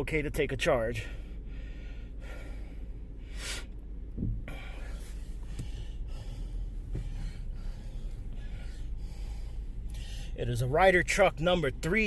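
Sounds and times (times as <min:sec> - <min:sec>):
steady low rumble: 0:00.0 - 0:12.0
man sniffing: 0:02.2 - 0:03.8.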